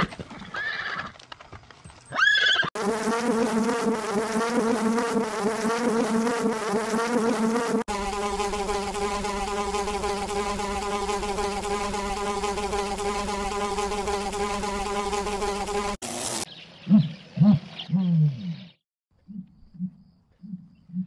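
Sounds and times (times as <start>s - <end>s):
flying insect buzzing: 2.7s - 16.5s.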